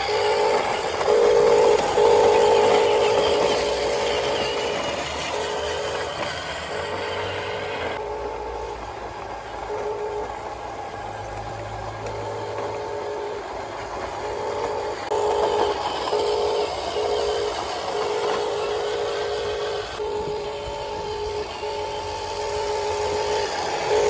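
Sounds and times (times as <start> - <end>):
electric motor and gearbox whine: 0.0 - 24.0.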